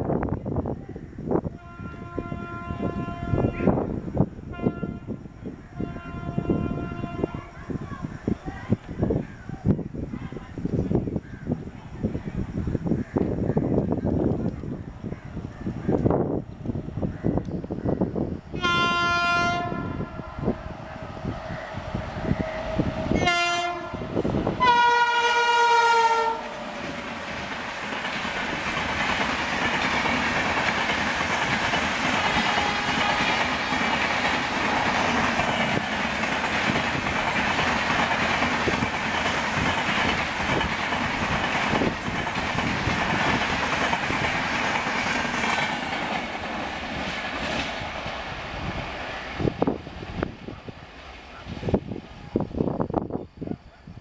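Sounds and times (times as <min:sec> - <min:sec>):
locomotive horn blasts: 0:01.6 - 0:03.9, 0:04.5 - 0:05.2, 0:05.8 - 0:07.5, 0:18.6 - 0:20.5, 0:22.7 - 0:26.7, 0:32.4 - 0:33.4
train coaches rushing past: 0:05.3 - 0:54.0.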